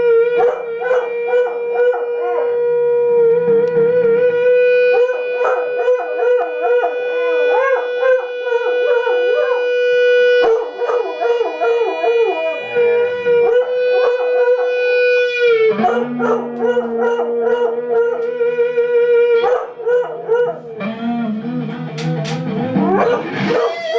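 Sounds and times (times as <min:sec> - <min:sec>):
dog howling: 0:00.0 - 0:20.9, 0:22.8 - 0:23.9.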